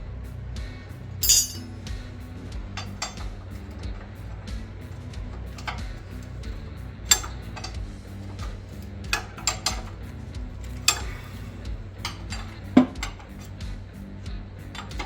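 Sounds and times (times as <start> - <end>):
background music with low beat: 0.0 - 15.0
metal tools clinking on parts: 1.2 - 1.9, 2.8 - 3.6, 5.3 - 6.4, 7.1 - 13.6, 14.6 - 15.0.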